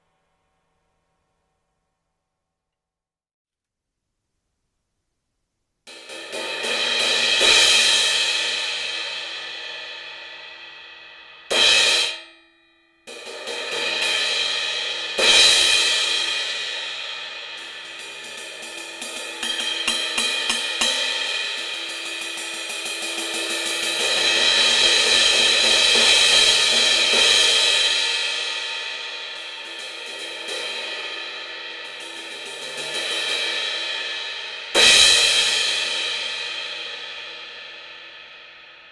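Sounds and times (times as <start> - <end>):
cymbal strikes ringing: 11.5 - 15.0, 17.6 - 30.5
choked cymbal hit: 17.6 - 30.2.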